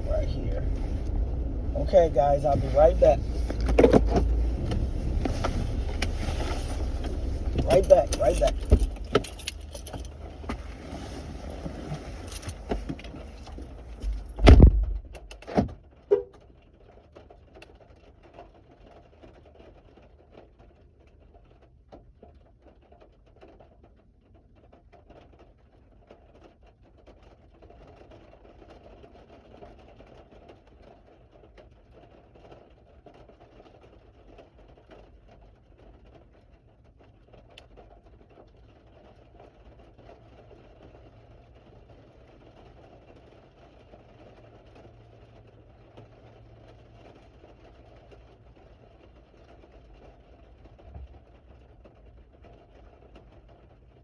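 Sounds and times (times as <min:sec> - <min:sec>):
car door shutting: 0:00.0 - 0:16.3
faint hum inside car: 0:00.0 - 0:21.6
rustling and jangling: 0:00.1 - 0:15.2.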